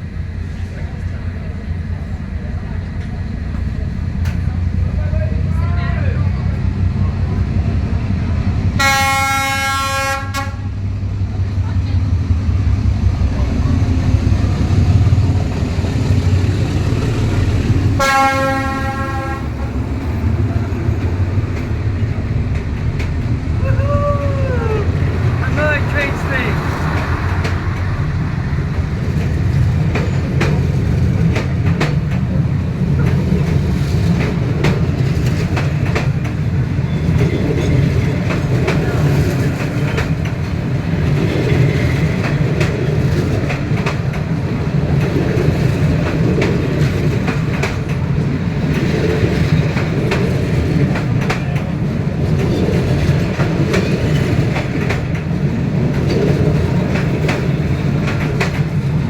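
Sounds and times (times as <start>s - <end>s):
train rumbling past: 0.0s - 59.0s
train wheel clicks and knocks: 19.6s - 23.5s, 28.6s - 59.0s.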